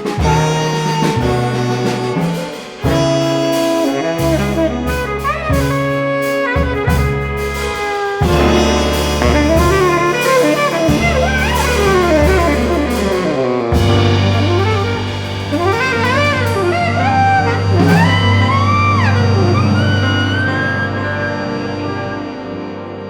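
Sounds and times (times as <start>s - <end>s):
drums: 0.0s - 20.6s
bass: 0.0s - 23.0s
tenor saxophone playing fast runs: 0.0s - 23.0s.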